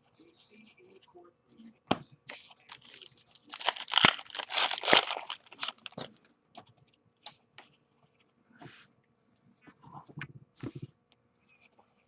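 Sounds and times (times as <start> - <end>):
wrapper torn and crumpled: 2.7 - 6.1.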